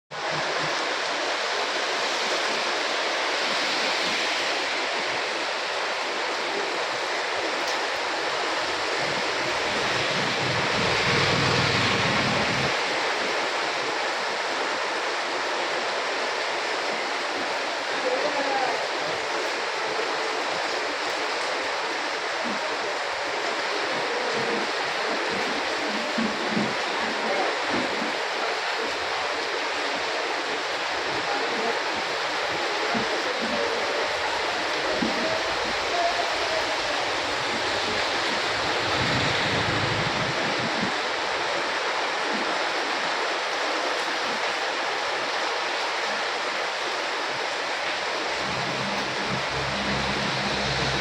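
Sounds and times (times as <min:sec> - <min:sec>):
heavy rain pouring: 0:00.1 - 0:51.0
low rumble: 0:09.1 - 0:12.8, 0:36.9 - 0:40.5, 0:48.2 - 0:51.0.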